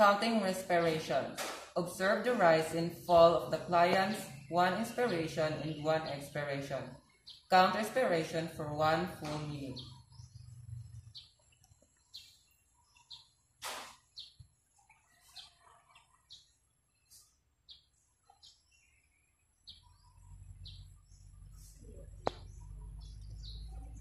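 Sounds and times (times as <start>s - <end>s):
small birds chirping: 0.0s - 24.0s
low hum: 8.0s - 12.5s.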